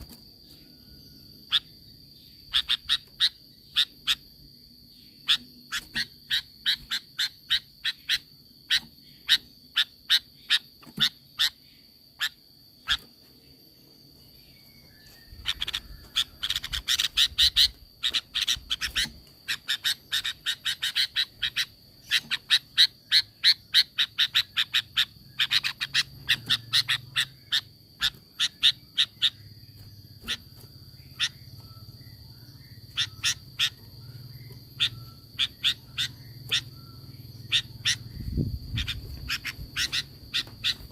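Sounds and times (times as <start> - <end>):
bird calling in sharp notes: 14.8 - 40.9.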